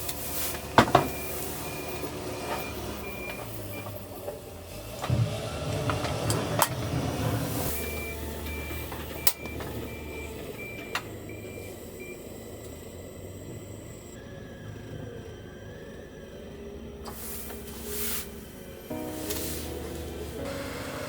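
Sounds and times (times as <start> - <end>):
engine rumble: 0.0 - 21.0
reversing beeper beeps: 1.0 - 4.0, 7.6 - 16.5.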